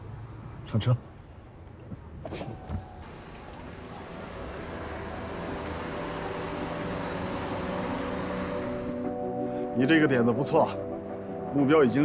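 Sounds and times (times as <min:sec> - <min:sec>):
steady car noise: 0:00.0 - 0:10.0
held background music notes: 0:03.0 - 0:12.0.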